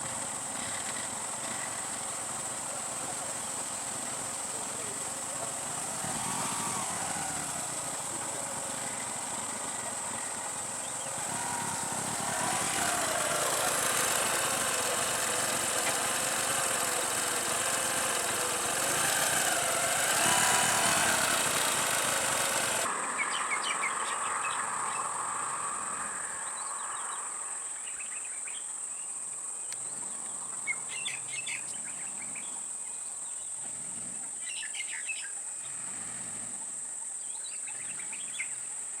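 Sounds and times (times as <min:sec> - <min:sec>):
vehicle engine running: 0:00.0 - 0:23.1
insects droning: 0:00.0 - 0:39.0
bird chirps: 0:23.0 - 0:25.2, 0:29.7 - 0:33.5.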